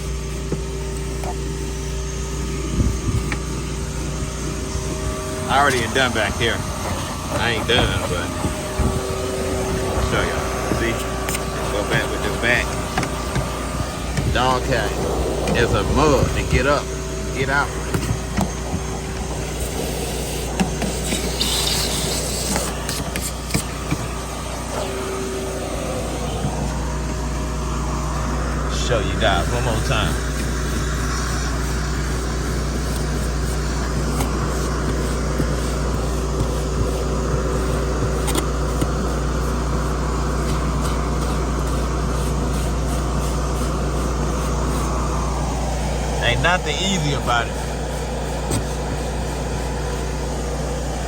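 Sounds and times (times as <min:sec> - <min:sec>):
steady low hum: 0:00.0 - 0:51.0
vacuum cleaner: 0:00.0 - 0:51.0
scratchy rubbing on carpet: 0:28.9 - 0:51.0.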